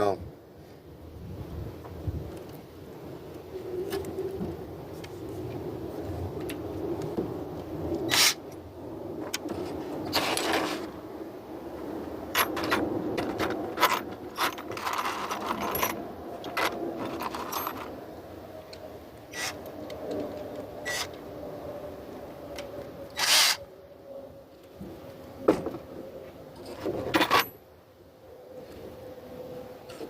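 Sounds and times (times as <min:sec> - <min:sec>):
tools clicking and scraping: 0:12.3 - 0:17.9, 0:19.3 - 0:21.2, 0:22.6 - 0:23.6.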